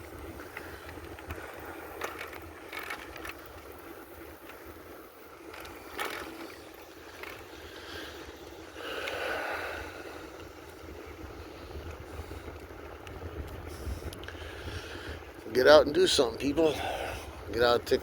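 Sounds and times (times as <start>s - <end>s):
bicycle rolling noise: 0.0s - 18.0s
wind buffeting microphone: 0.0s - 18.0s
sharp clicks and rattles: 0.5s - 3.8s.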